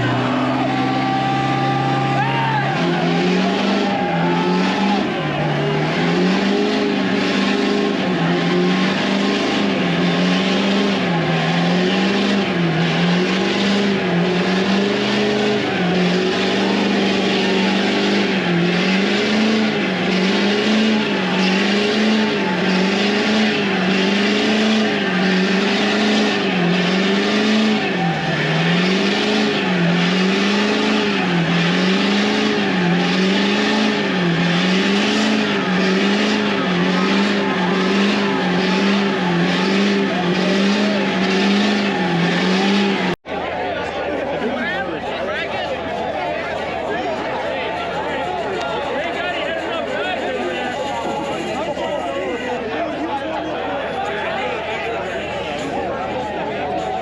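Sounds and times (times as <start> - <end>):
engine at high revs: 0.0 - 43.3.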